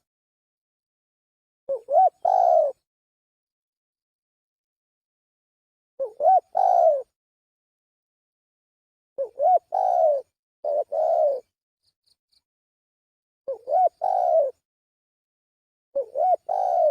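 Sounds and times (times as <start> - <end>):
dove cooing: 1.7 - 2.8, 6.0 - 7.2, 9.2 - 11.5, 13.5 - 14.6, 16.0 - 16.9.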